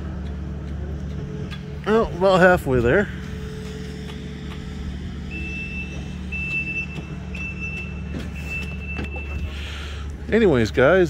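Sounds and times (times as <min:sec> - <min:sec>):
heavy engine running: 0:00.0 - 0:11.0
backup alarm beeps: 0:05.2 - 0:09.6.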